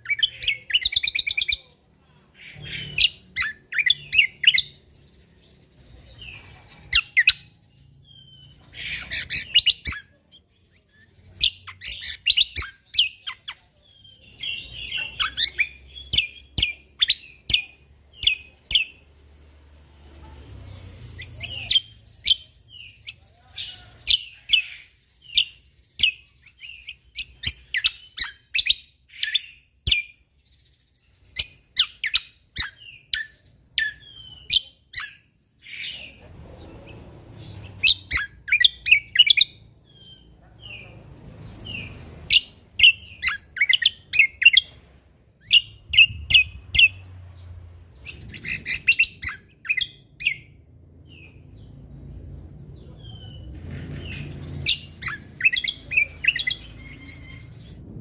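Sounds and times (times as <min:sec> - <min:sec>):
songbird chirping: 0:00.0 - 0:58.0
faint low rumble: 0:39.5 - 0:58.0.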